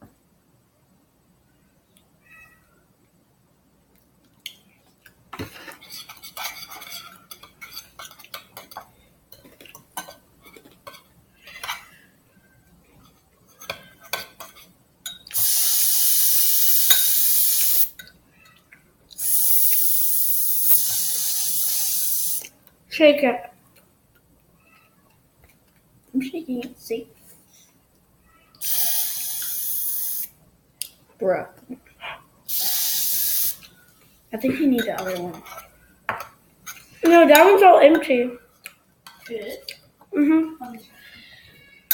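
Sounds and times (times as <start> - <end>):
utensil scraping in a bowl: 5.6 - 8.8
loud steady hisses: 15.3 - 18.0, 19.2 - 22.5, 28.6 - 30.4, 32.5 - 33.7.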